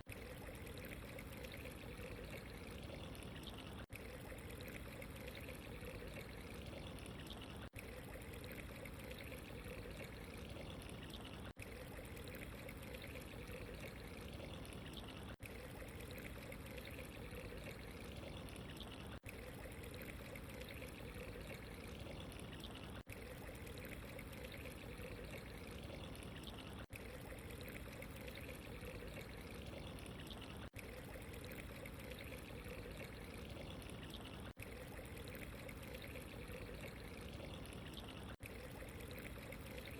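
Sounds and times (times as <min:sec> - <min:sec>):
trickling pouring water: 0:00.0 - 0:39.9.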